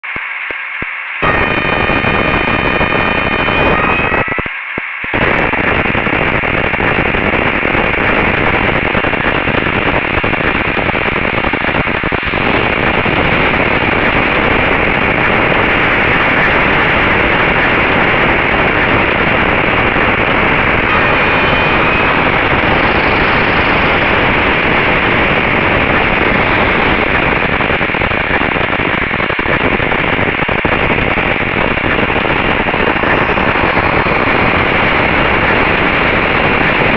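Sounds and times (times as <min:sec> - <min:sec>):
faint high whining tones: 0:00.0 - 0:28.9
static hiss: 0:00.0 - 0:36.9.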